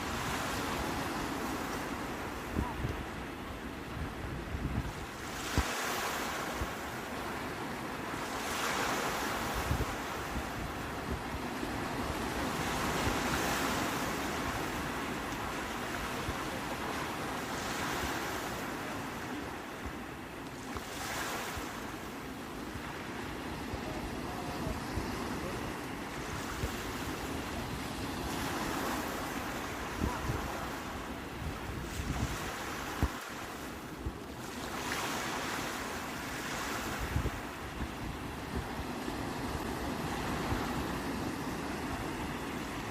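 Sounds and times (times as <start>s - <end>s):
sea waves washing onto shore: 0.0s - 42.9s
wind buffeting microphone: 22.8s - 33.2s.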